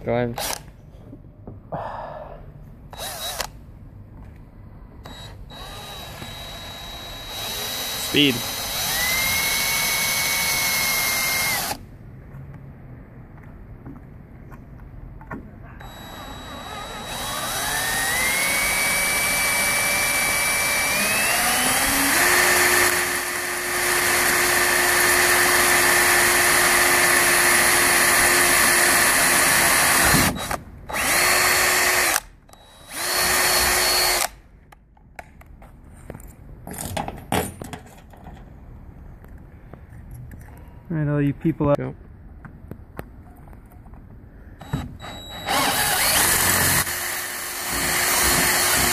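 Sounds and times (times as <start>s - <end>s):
electric drill boring into metal: 3.0s - 3.5s, 5.1s - 11.8s, 15.8s - 34.3s, 44.6s - 48.9s.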